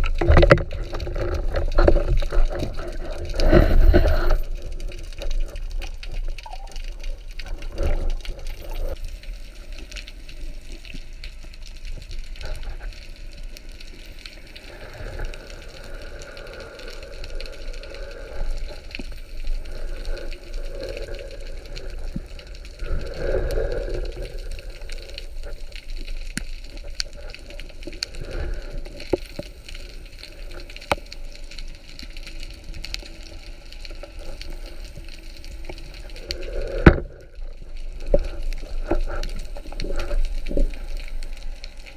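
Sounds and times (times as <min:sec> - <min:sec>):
low underwater rumble: 0:00.0 - 0:30.1
underwater crackle of clicks: 0:00.0 - 0:41.9
water noise swells: 0:00.0 - 0:41.9.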